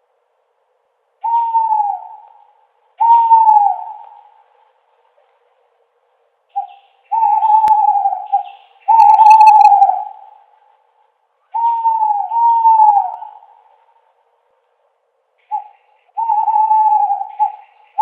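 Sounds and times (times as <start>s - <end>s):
owl hooting: 1.2s - 5.4s, 6.5s - 10.7s, 11.4s - 14.1s, 15.4s - 18.0s.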